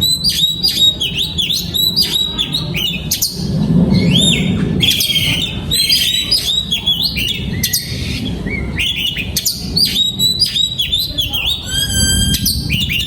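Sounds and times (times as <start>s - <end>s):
bird singing whistled notes: 9.9s - 13.0s.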